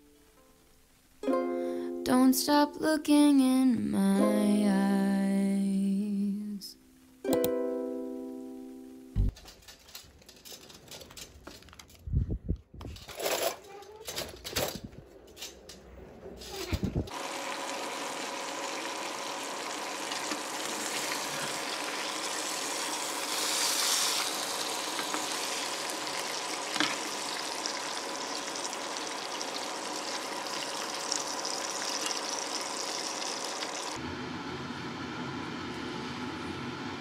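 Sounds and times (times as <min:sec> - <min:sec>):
french toast sizzling in butter: 0:17.1 - 0:34.0.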